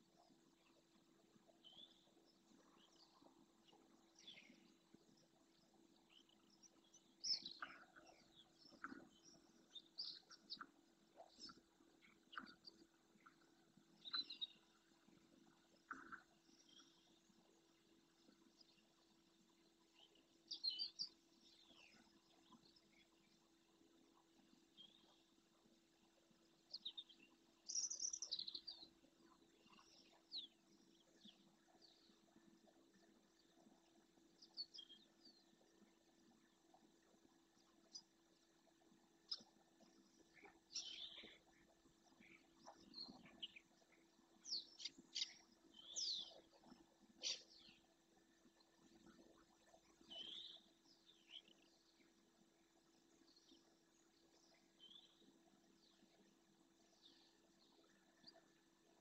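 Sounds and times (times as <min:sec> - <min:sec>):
faint bird calls: 0:15.8 - 0:17.1, 0:44.4 - 0:47.8.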